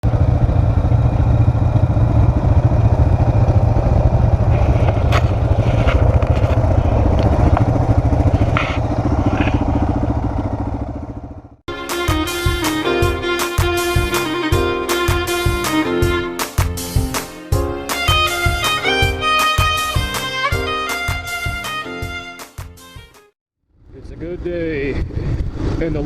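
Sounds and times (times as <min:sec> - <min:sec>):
atv engine running: 0:00.0 - 0:11.6
fiddle music: 0:11.7 - 0:23.3.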